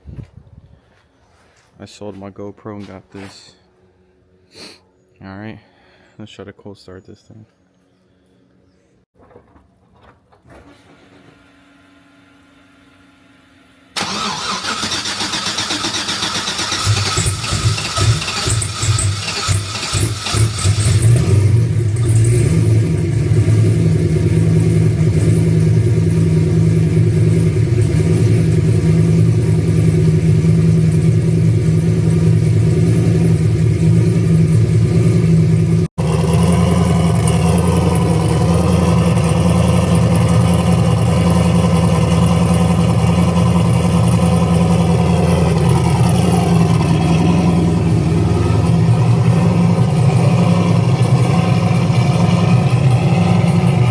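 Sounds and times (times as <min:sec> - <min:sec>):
engine fast idling: 0:14.0 - 0:22.0, 0:35.2 - 0:53.9.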